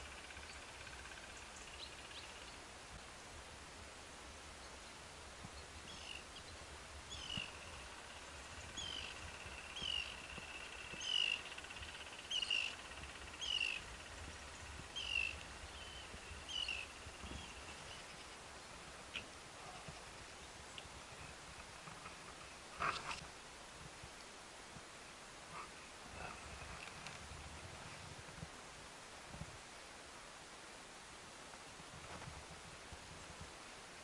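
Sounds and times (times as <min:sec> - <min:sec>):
faint low outdoor rumble: 0:00.0 - 0:34.0
bird calling high: 0:07.1 - 0:14.3, 0:14.9 - 0:18.2.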